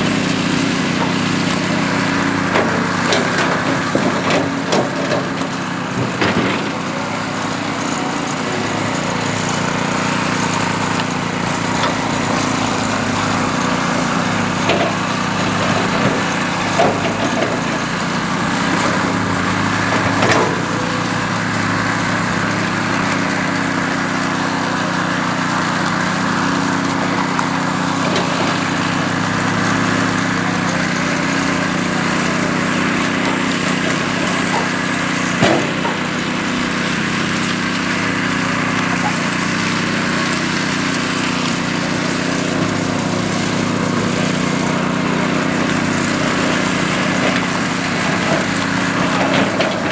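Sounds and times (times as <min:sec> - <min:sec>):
blades scraping concrete: 0:00.0 - 0:49.9
small petrol engine running: 0:00.0 - 0:49.9.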